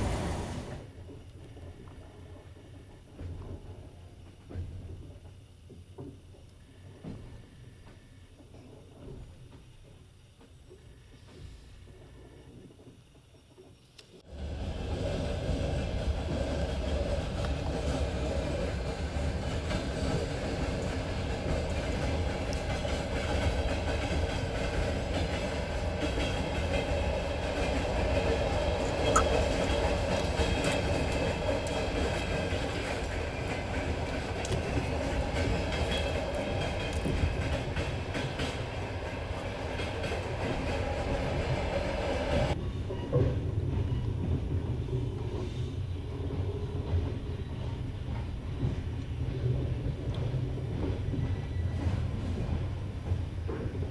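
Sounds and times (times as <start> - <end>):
high hiss: 0.0 - 0.8
train wheels rumbling on rails: 0.0 - 53.9.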